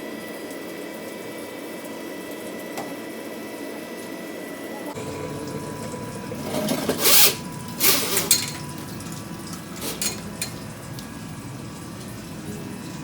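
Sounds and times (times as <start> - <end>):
machine hum: 4.8 - 13.0
drain machine rasping: 5.0 - 13.0.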